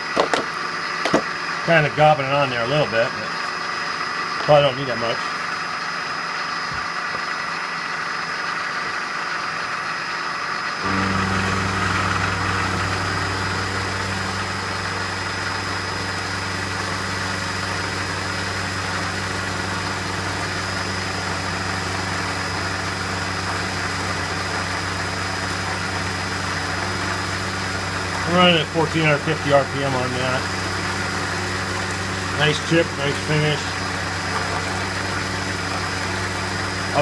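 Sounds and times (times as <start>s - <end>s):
deep loud machine hum: 0.0s - 37.0s
metalworking machine running: 10.0s - 37.0s.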